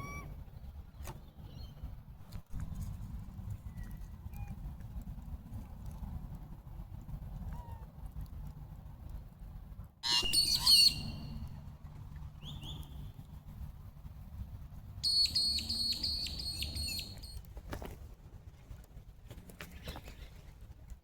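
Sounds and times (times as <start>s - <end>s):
birds chirping: 10.0s - 11.4s, 15.0s - 17.4s.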